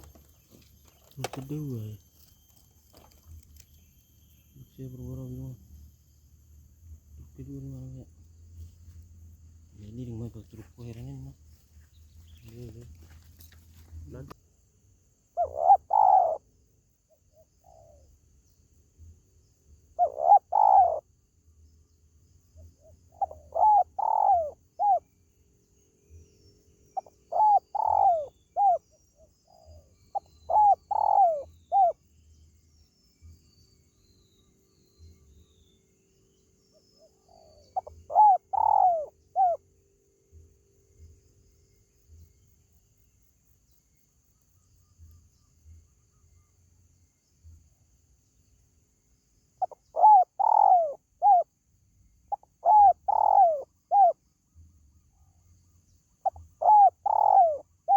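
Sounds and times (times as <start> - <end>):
dove cooing: 15.4 - 16.5, 19.9 - 21.1, 22.8 - 25.1, 27.0 - 32.0, 37.0 - 39.6, 49.6 - 51.5, 52.3 - 54.2, 56.2 - 57.9.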